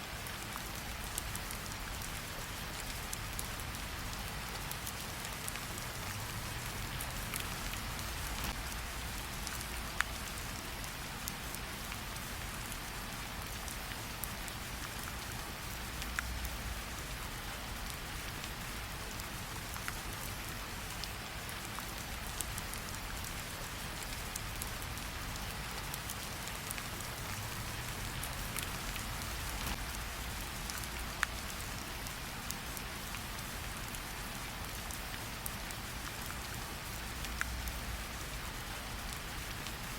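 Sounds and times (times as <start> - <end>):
rain hissing: 0.8 - 11.0, 23.6 - 39.9.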